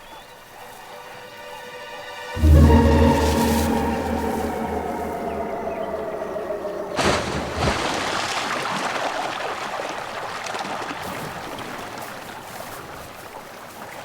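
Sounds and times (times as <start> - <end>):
water churning and trickling: 3.0 - 11.8
splash into water: 6.9 - 11.8.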